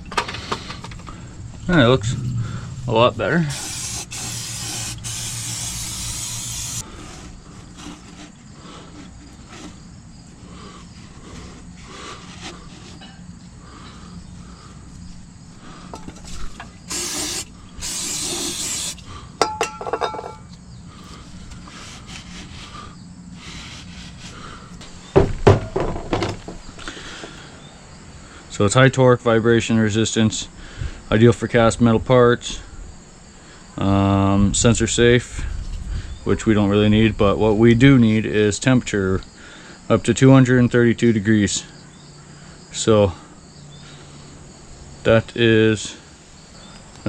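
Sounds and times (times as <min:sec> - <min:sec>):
aerosol can spraying: 0:03.5 - 0:06.8, 0:16.9 - 0:19.0
loud metal knocks: 0:25.2 - 0:26.6.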